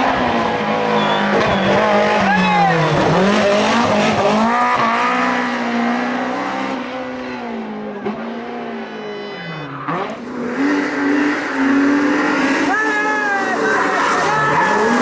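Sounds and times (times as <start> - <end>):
car engine revving high: 0.0 - 15.0
tyres squealing: 8.0 - 10.2.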